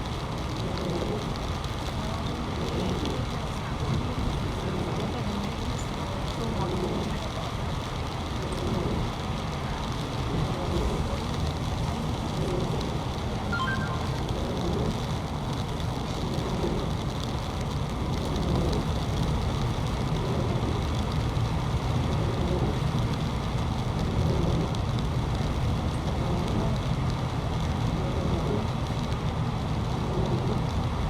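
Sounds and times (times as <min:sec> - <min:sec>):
heavy rain: 0:00.0 - 0:31.0
short high beeps: 0:13.5 - 0:14.4.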